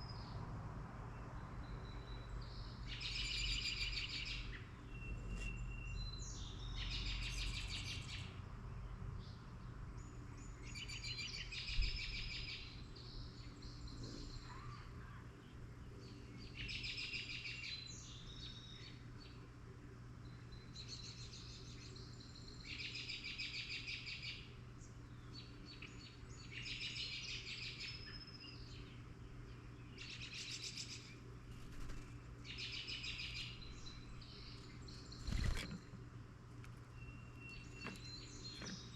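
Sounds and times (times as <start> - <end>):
songbird trilled song: 0.0 - 14.5, 15.5 - 19.4, 20.2 - 38.9
steady low hum: 24.3 - 38.9.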